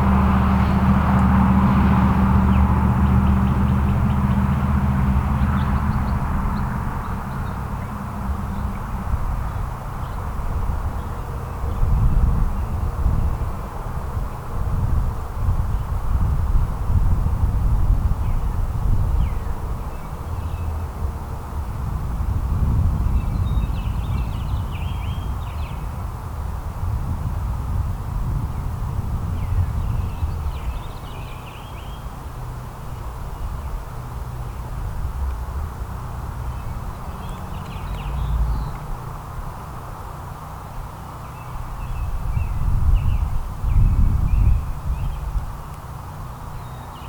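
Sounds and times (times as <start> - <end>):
songbirds chirping: 0.0 - 13.5, 23.0 - 25.9, 29.4 - 47.0
steady low rumble: 0.0 - 24.5
songbird chirping: 36.4 - 38.9.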